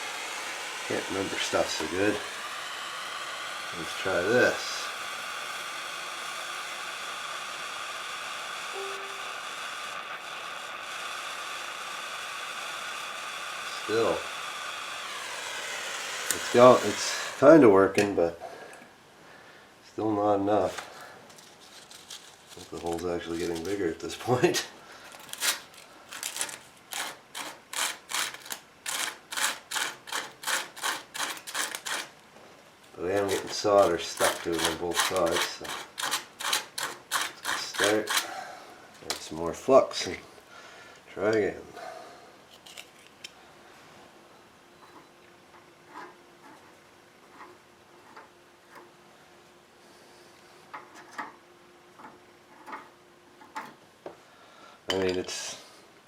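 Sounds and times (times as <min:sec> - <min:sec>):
rubbing strokes on a radiator: 0:33.0 - 0:38.3, 0:45.8 - 0:48.8.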